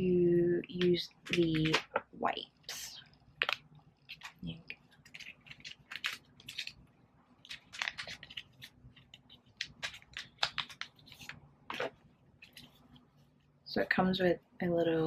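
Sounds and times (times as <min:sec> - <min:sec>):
plastic packaging crinkling: 0:02.7 - 0:13.1.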